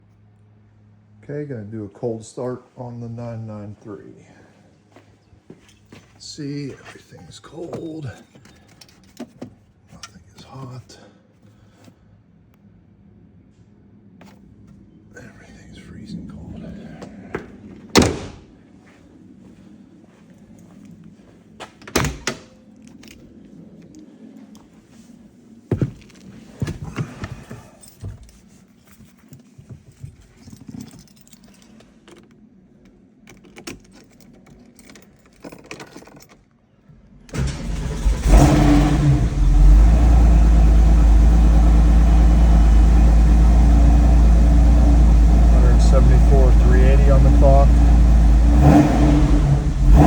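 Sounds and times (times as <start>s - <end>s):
car engine starting and idling: 37.0s - 50.0s.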